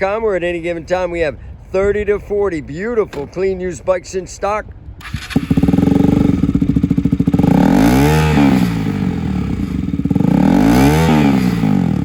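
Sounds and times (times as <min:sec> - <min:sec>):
motorcycle engine idling and revving: 0:05.0 - 0:12.0.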